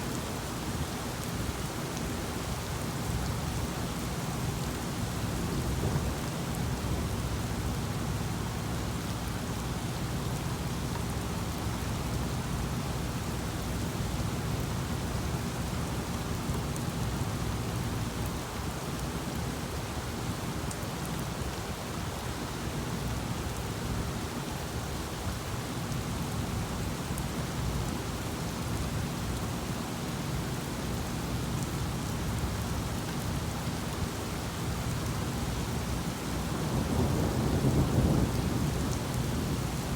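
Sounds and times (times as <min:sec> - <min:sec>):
heavy rain falling: 0:00.0 - 0:39.9
thunder rumbling: 0:36.3 - 0:39.9.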